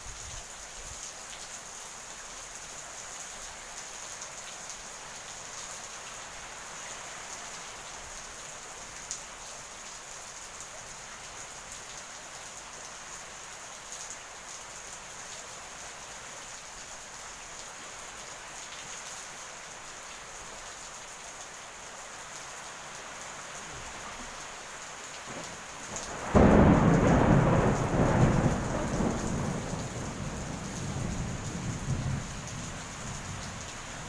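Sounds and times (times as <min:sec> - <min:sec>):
heavy rain: 0:00.0 - 0:34.0
thunder clap and rumble: 0:25.3 - 0:34.0.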